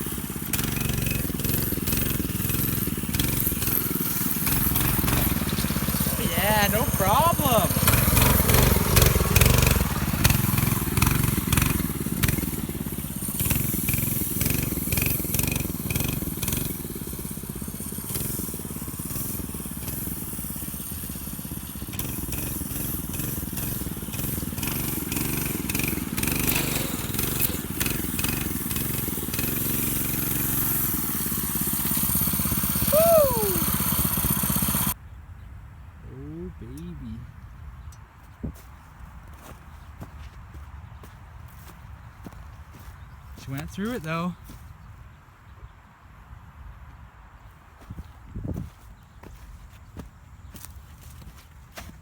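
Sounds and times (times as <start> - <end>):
mini bike engine revving: 0.0 - 35.0.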